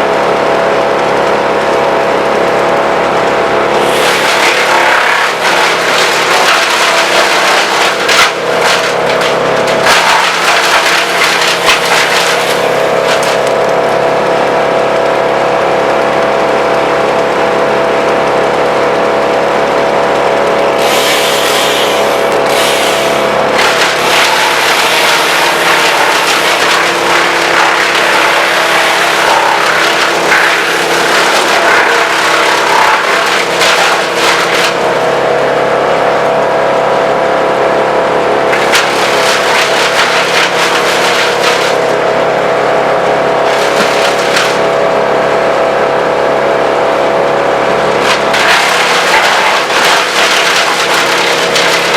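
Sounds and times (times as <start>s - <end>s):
wood chipper running: 0.0s - 51.9s
wood crackling and snapping: 3.8s - 14.0s, 23.5s - 35.1s, 38.5s - 42.0s, 43.4s - 44.7s, 48.0s - 51.9s.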